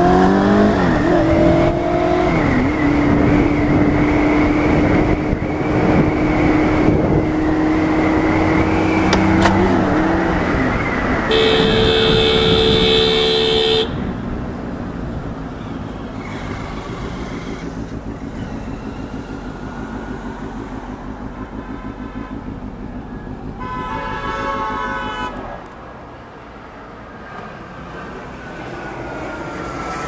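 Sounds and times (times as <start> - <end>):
vehicle horn: 11.3 - 14.1, 21.3 - 22.6, 23.6 - 25.5
engine running steadily: 11.3 - 26.1.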